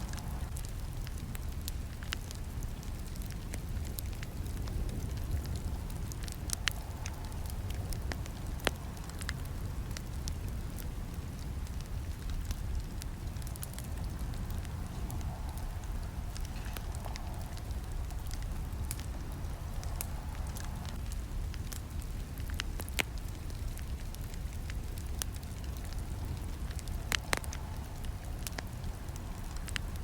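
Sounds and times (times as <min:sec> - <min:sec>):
campfire crackling and popping: 0:00.0 - 0:30.0
low rumble of flames: 0:00.0 - 0:30.0.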